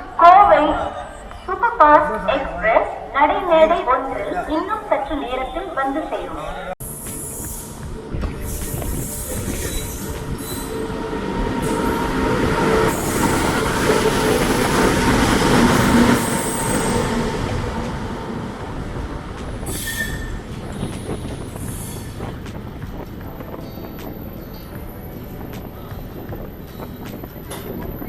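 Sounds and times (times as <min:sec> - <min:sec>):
train coaches and wheels rumbling: 0:00.0 - 0:28.0
train wheels squealing: 0:06.8 - 0:11.0, 0:19.6 - 0:22.3.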